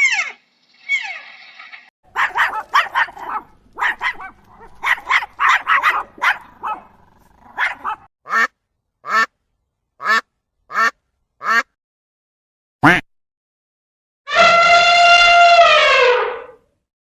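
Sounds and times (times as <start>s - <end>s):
young animals calling: 0.0s - 8.5s.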